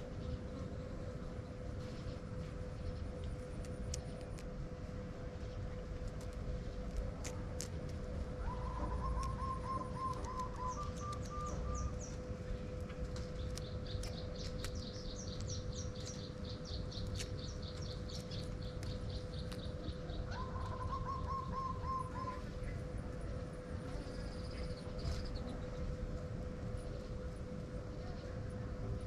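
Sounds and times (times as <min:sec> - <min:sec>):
faint hum: 0:00.0 - 0:29.0
small birds chirping: 0:05.4 - 0:29.0.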